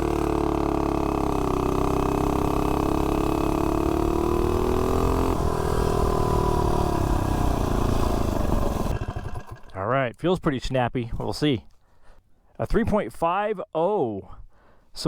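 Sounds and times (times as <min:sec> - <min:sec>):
mini bike engine at full throttle: 0:00.0 - 0:09.8.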